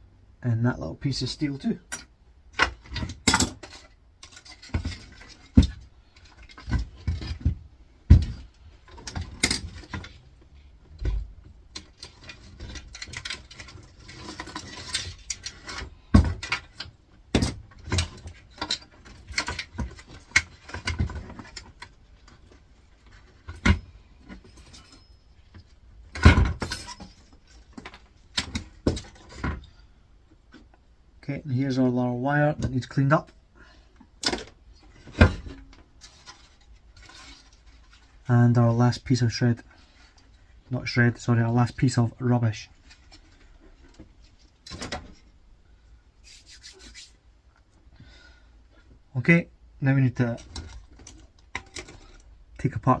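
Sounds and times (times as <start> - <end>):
metal and plastic parts knocking: 11.0 - 22.6.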